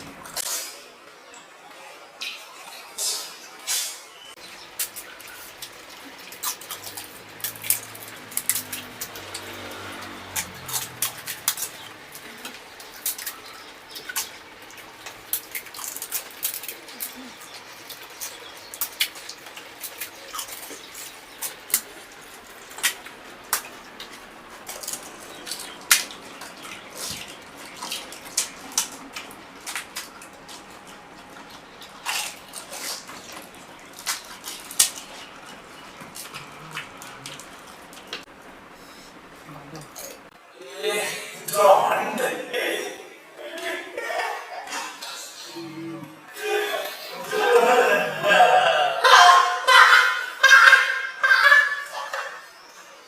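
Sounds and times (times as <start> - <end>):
wet chewing and slurping: 4.6 - 40.3.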